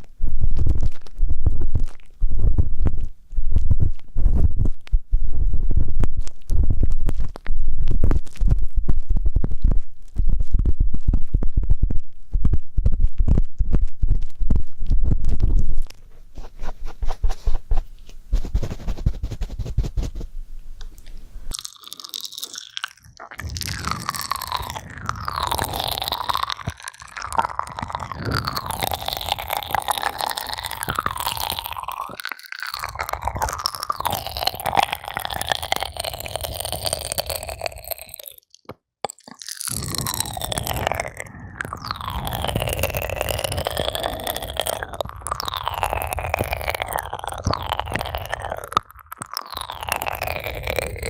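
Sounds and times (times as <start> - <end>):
ear pick scraping microphone: 15.1 - 20.4.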